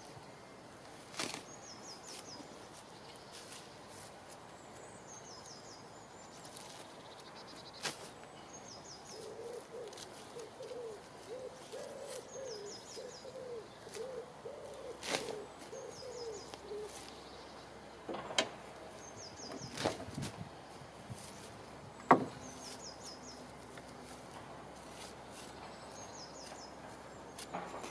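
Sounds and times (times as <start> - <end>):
small bird singing: 1.4 - 18.0, 18.8 - 24.2, 25.0 - 27.9
bird hooting: 9.1 - 17.2
sharp knocks: 22.1 - 22.4.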